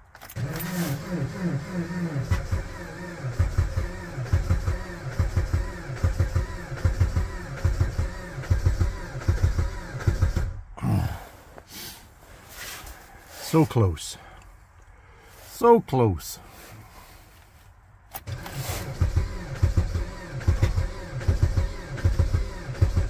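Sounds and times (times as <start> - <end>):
car engine cranking without starting: 0.0 - 11.1, 18.1 - 23.0.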